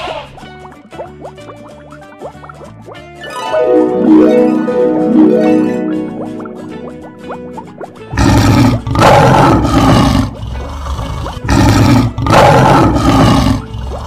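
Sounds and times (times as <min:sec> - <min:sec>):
lion roaring: 0:08.1 - 0:14.0.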